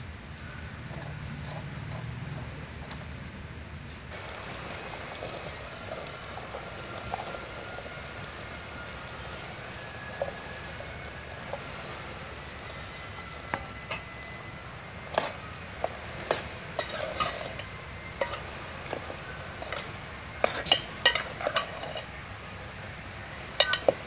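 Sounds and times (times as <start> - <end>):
curry bubbling in a pot: 4.1 - 24.0
bird trilling: 5.2 - 16.8.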